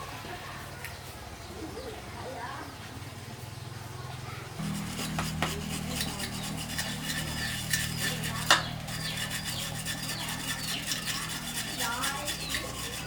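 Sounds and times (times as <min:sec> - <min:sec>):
steady low hum: 0:04.6 - 0:13.0.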